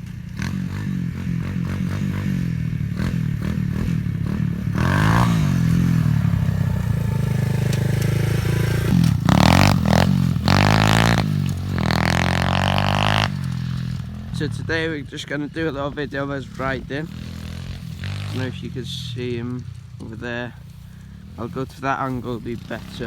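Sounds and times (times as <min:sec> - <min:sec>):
pit bike engine revving: 0:00.0 - 0:23.0.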